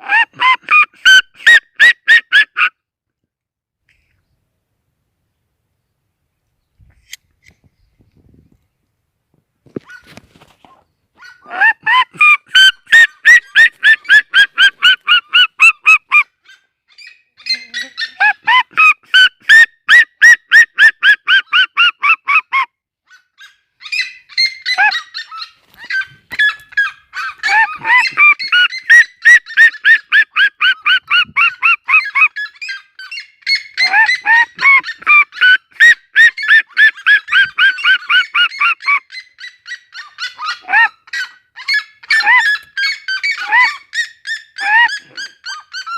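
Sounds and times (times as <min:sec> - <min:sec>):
bird yelping calls: 0:11.2 - 0:45.9.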